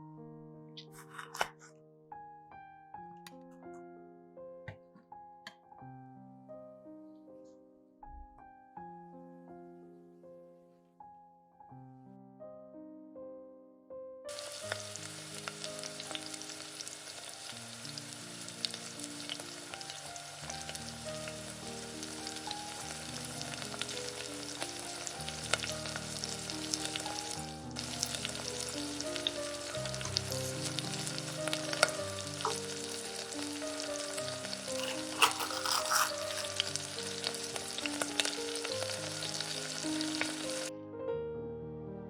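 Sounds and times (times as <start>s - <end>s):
food sizzling in oil: 14.3s - 40.7s.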